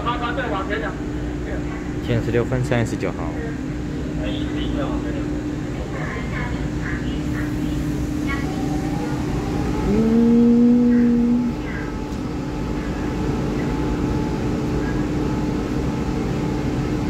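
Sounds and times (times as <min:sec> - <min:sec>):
electric train humming: 0:03.4 - 0:17.0
two-tone train horn: 0:09.9 - 0:11.6.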